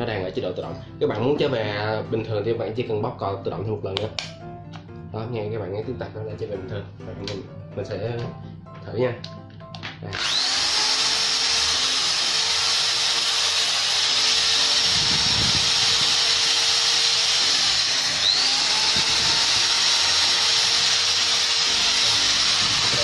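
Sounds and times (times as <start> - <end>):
electric drill motor whine: 10.1 - 23.0.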